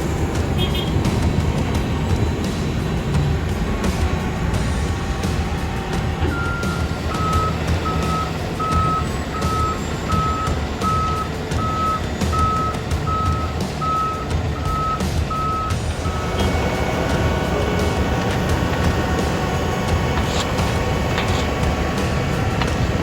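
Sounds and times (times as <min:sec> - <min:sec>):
truck engine running: 0:00.0 - 0:23.0
reversing alarm beeping: 0:06.3 - 0:23.0.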